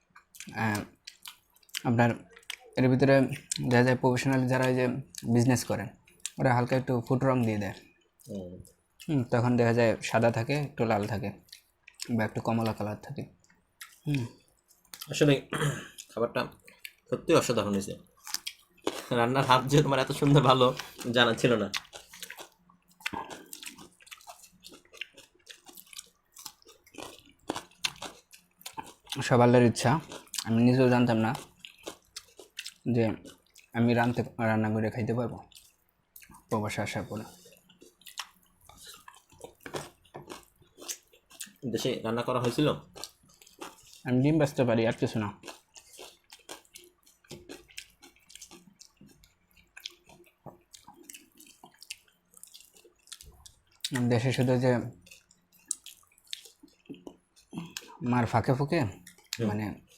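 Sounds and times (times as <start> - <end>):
chewing clicks and smacks: 0.1 - 5.4, 6.0 - 6.4, 11.0 - 15.2, 15.9 - 17.1, 18.0 - 34.2, 35.4 - 36.6, 37.4 - 41.6, 42.4 - 44.1, 45.4 - 58.0, 58.9 - 59.9.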